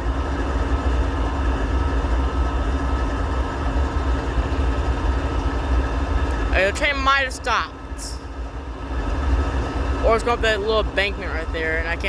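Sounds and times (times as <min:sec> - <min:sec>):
diesel locomotive engine idling: 0:00.0 - 0:12.0
faint hum: 0:00.0 - 0:12.0.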